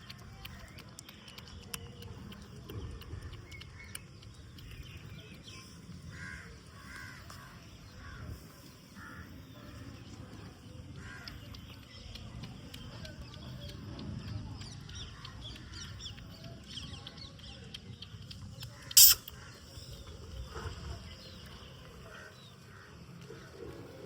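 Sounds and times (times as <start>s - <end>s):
loud sharp animal cry: 18.9s - 19.3s
short high animal chirps: 18.9s - 19.4s.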